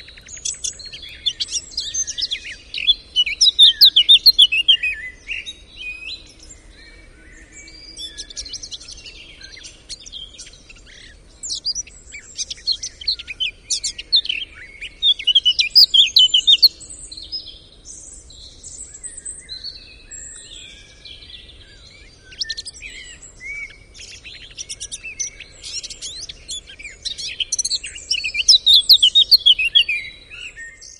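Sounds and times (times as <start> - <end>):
songbirds chirping: 0.0 - 30.9.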